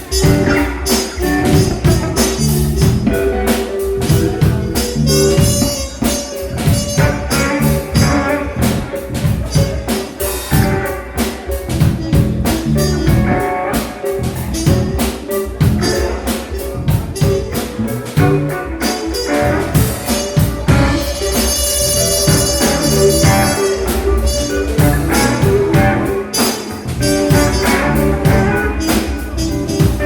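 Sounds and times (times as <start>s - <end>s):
drum kit beat: 0.0s - 30.0s
electric guitar: 0.0s - 30.0s.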